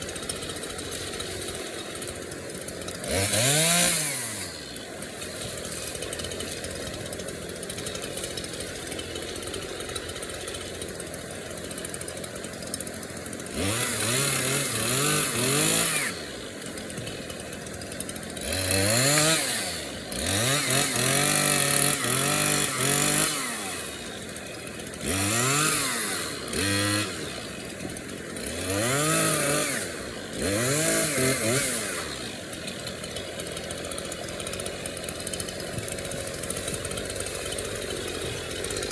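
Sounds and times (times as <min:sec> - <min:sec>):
chainsaw idling and revving: 0:00.0 - 0:38.9.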